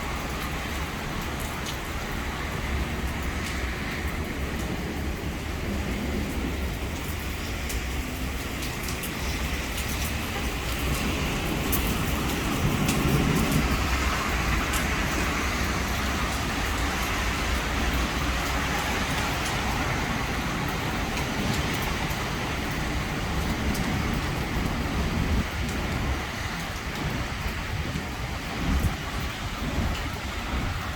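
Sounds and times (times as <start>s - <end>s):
heavy rain pouring: 0.0s - 30.9s
raindrops ticking on a surface: 0.0s - 30.9s.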